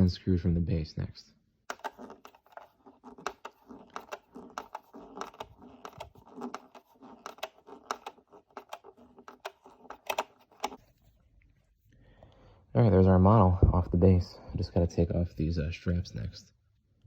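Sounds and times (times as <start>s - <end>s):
screwdriver clicks and scrapes: 1.7s - 10.8s.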